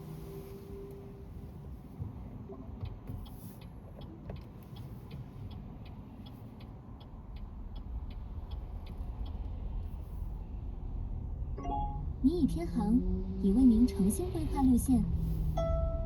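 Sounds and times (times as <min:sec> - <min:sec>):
engine and road rumble: 0:00.0 - 0:16.0
turn signal ticking: 0:01.8 - 0:16.0.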